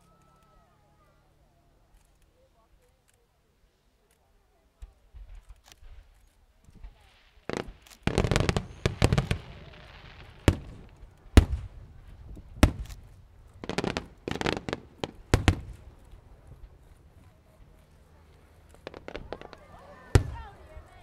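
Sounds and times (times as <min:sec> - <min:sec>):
fireworks bursting with bangs: 0:05.1 - 0:21.0
fireworks hiss: 0:06.8 - 0:17.1, 0:18.4 - 0:20.8.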